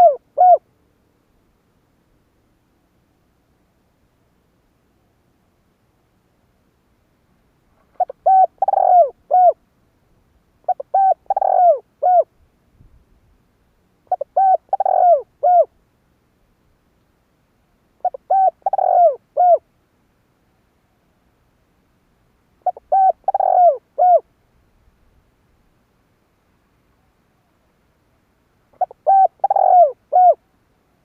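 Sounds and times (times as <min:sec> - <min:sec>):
dove cooing: 0:00.0 - 0:00.6, 0:07.9 - 0:09.6, 0:10.6 - 0:12.3, 0:14.1 - 0:15.7, 0:18.0 - 0:19.6, 0:22.6 - 0:24.3, 0:28.8 - 0:30.4.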